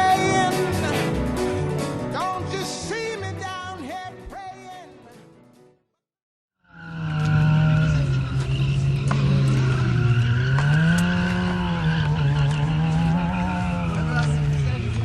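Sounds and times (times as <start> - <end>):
tyre squeal: 6.8 - 14.1
motorcycle engine revving high: 6.8 - 15.0.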